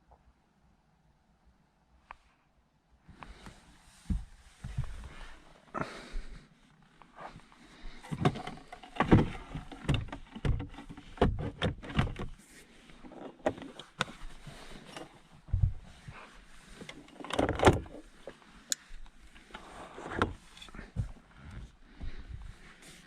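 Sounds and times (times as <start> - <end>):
objects clunking and rustling in car: 7.2 - 23.0.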